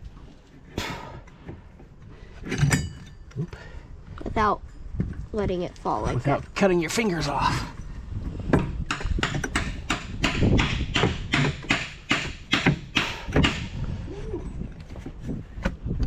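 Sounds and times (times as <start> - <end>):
metal parts knocking and clanking: 2.4 - 3.5.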